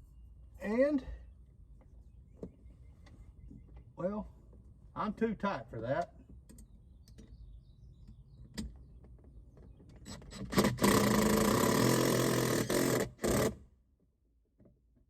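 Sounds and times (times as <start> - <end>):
power drill driving screw: 10.1 - 13.6.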